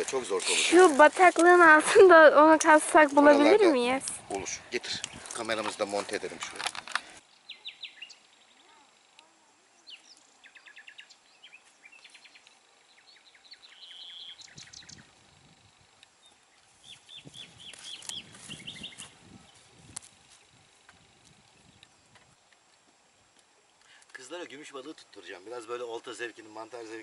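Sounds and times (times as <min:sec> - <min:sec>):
songbirds chirping and trilling: 0:04.4 - 0:22.2.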